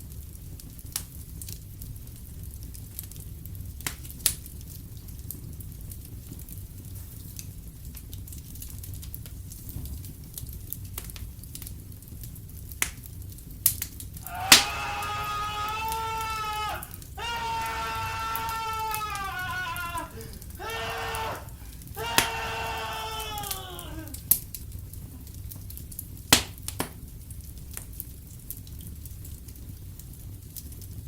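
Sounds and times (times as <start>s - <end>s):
wood fire crackling: 0.0s - 31.0s
high-pitched scream: 14.2s - 24.2s.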